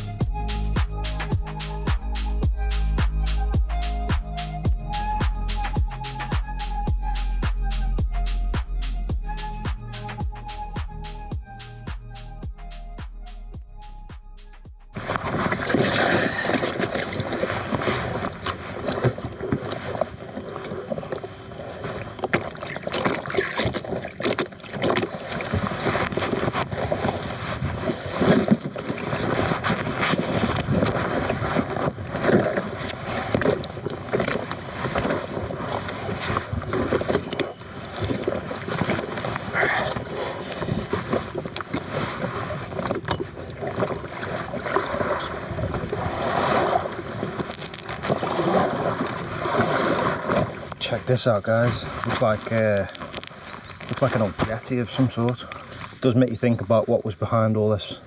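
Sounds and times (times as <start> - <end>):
paddle strokes splashing: 15.0 - 56.0
water sloshing: 15.0 - 56.0.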